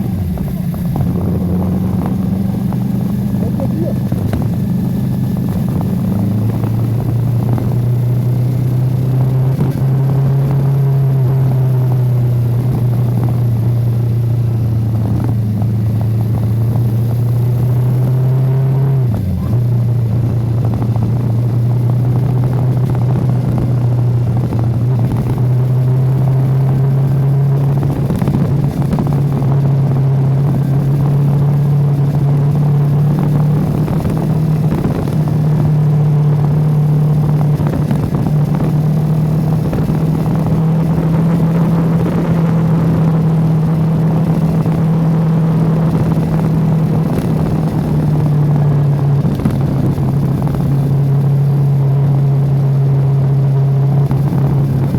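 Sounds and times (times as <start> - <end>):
motorcycle engine cruising: 0.0 - 54.9.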